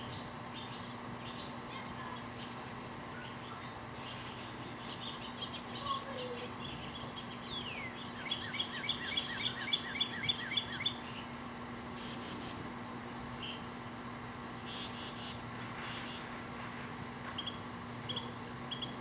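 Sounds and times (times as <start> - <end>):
bird whistling and chirping: 6.7 - 11.0.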